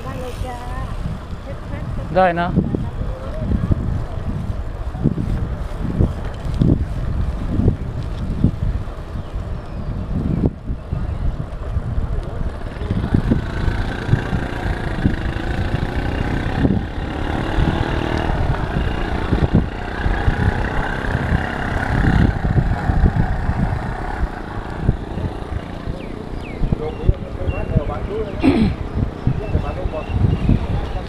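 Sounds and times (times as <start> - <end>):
wind buffeting microphone: 0.0 - 31.0
motor vehicle engine: 12.4 - 31.0.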